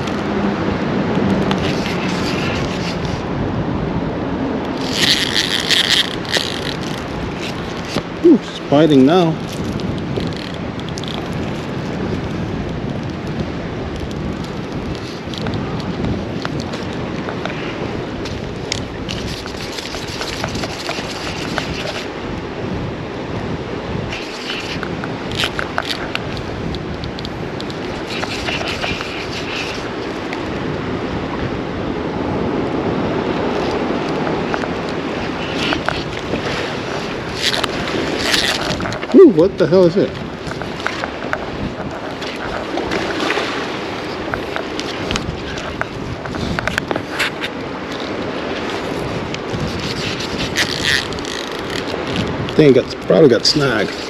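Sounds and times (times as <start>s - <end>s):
flowing creek water: 0.0s - 3.4s, 4.0s - 22.4s, 24.0s - 54.0s
wind: 0.0s - 54.0s
fishing reel clicking: 4.8s - 8.0s, 49.8s - 52.0s
small clicks and ticks: 4.8s - 8.0s, 9.5s - 11.6s.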